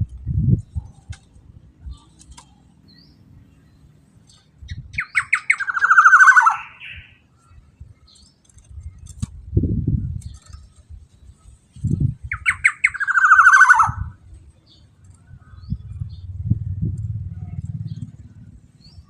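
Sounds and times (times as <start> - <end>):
bird calling harsh nasal call: 5.0 - 7.2, 12.3 - 14.1
low muffled sound: 15.2 - 19.0.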